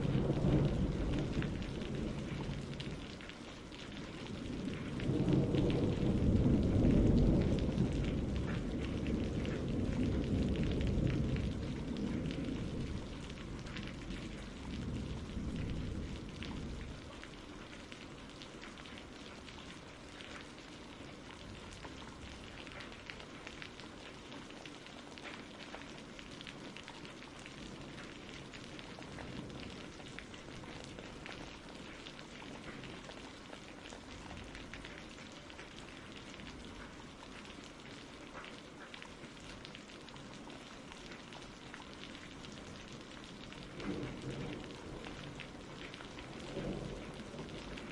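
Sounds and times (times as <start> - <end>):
thunder rumble: 0.0 - 18.2, 42.6 - 47.9
rain falling: 0.0 - 47.9.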